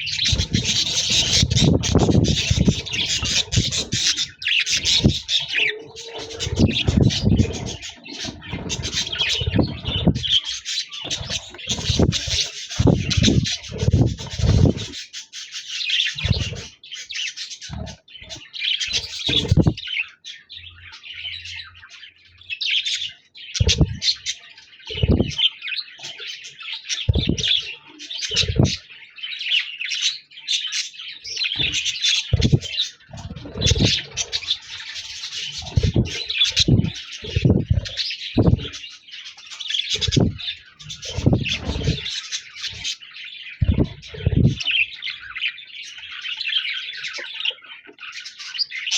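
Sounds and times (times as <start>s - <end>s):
budgerigars warbling and chattering: 0.0s - 48.9s
short low thuds: 19.3s - 19.8s, 23.6s - 24.1s, 25.0s - 25.4s, 27.1s - 27.5s, 32.4s - 34.0s, 35.6s - 38.8s, 40.0s - 40.4s, 41.1s - 42.0s.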